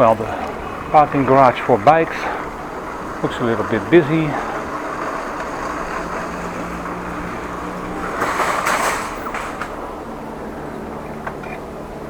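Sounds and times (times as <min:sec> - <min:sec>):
bike riding noise: 0:00.0 - 0:12.0
rustling scrape: 0:03.0 - 0:09.9.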